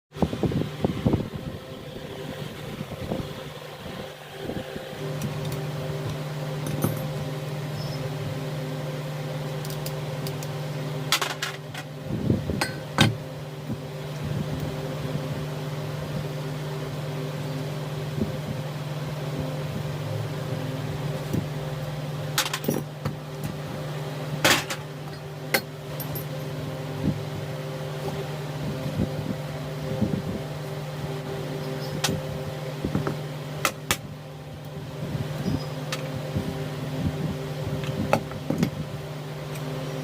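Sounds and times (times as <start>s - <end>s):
steady mechanical hum: 0.1s - 40.0s.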